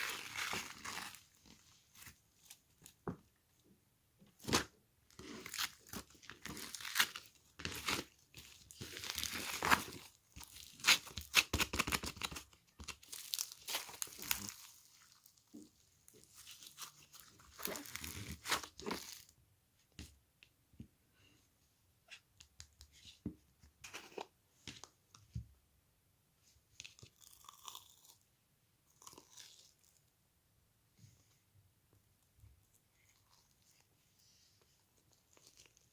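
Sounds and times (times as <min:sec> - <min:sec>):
close-up crunching and crackling: 0:00.0 - 0:02.6, 0:04.4 - 0:19.3, 0:26.8 - 0:28.2, 0:28.9 - 0:30.0, 0:35.0 - 0:35.9.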